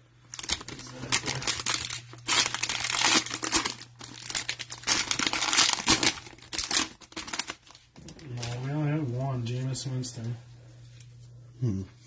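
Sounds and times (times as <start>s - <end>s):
cellophane wrapper crinkling and tearing: 0.2s - 8.7s.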